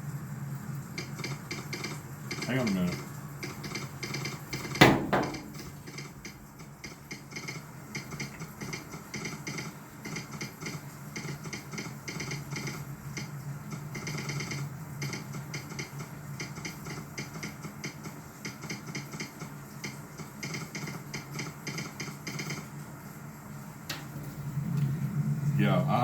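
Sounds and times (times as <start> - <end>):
sharp knock: 4.8 - 5.6.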